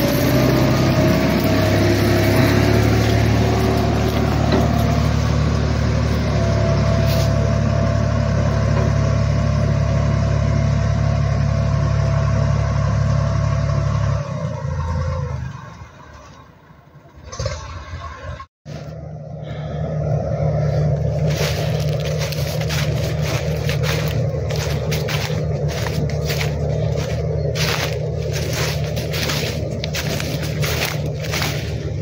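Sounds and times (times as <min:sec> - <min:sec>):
machinery clatter: 0:00.0 - 0:07.7, 0:21.0 - 0:32.0
tractor engine running: 0:00.0 - 0:17.6, 0:18.7 - 0:32.0.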